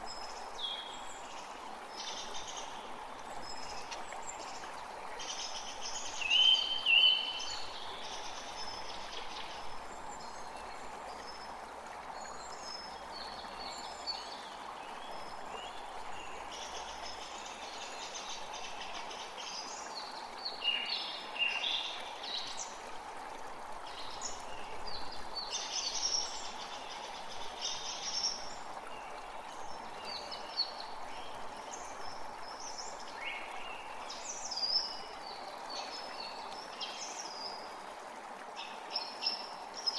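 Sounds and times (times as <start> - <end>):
songbirds singing: 0.0 - 11.6, 12.2 - 22.8
creek running: 0.0 - 39.9.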